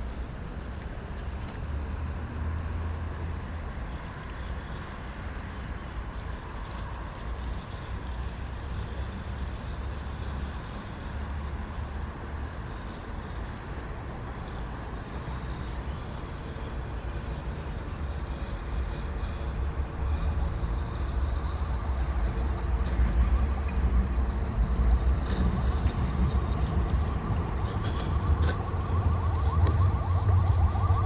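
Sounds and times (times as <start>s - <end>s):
low rumble of city noise: 0.0s - 31.0s.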